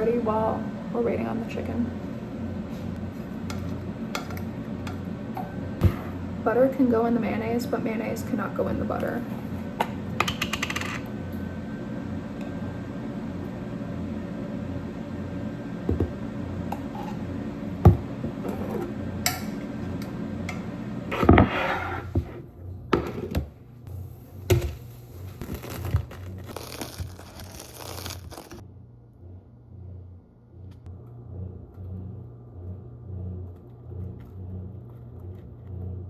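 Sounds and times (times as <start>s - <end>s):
kitchen appliance humming: 0.0s - 28.7s
utensils and dishes clinking: 3.4s - 6.1s, 18.4s - 21.3s
packaging crinkling: 24.8s - 28.6s.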